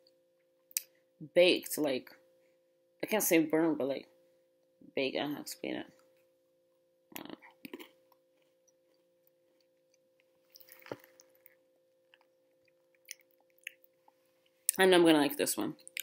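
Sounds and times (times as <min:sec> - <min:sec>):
crunch of biting biscuit: 0:07.2 - 0:13.8
chewing: 0:07.2 - 0:14.2.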